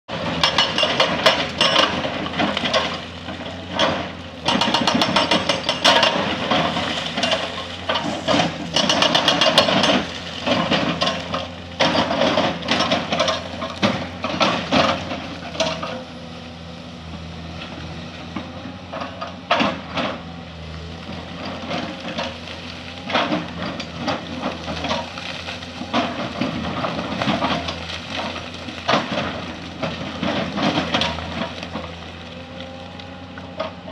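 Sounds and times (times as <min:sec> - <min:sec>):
excavator diesel engine: 0:00.0 - 0:33.9
hydraulic breaker hammering rock: 0:00.2 - 0:16.1.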